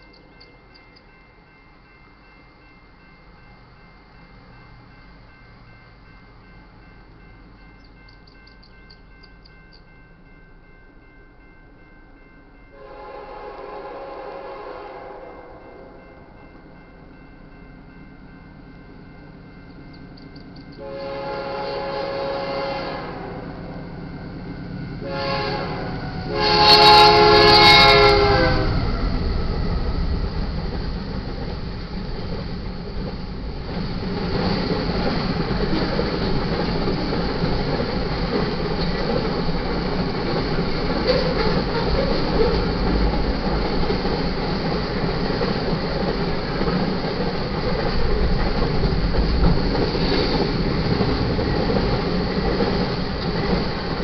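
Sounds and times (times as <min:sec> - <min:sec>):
train horn blasts: 0:12.7 - 0:16.0, 0:20.8 - 0:23.8, 0:25.0 - 0:29.0
train running rumble: 0:15.6 - 0:54.0.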